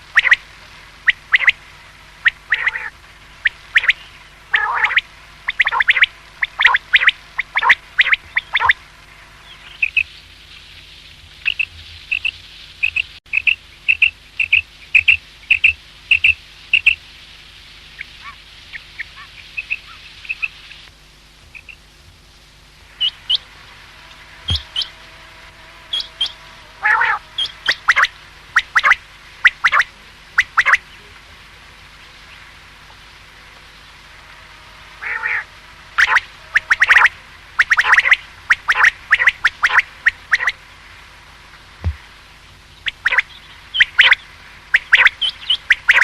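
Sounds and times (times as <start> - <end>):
quail calling: 0.0 - 8.8, 9.4 - 10.2, 11.4 - 17.0, 18.0 - 20.9, 21.5 - 21.9, 23.0 - 23.5, 24.1 - 25.2, 25.8 - 31.1, 34.4 - 40.6, 42.8 - 46.0.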